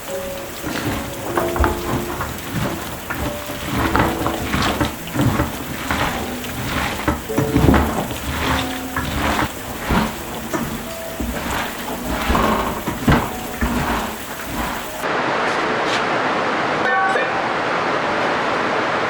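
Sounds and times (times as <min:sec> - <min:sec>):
food frying in a pan: 0:00.0 - 0:15.1.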